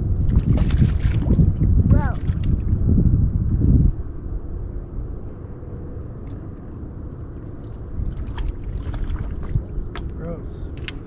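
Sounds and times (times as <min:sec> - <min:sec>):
boat low rumble: 0:00.0 - 0:11.0
small clicks and ticks: 0:07.2 - 0:08.6.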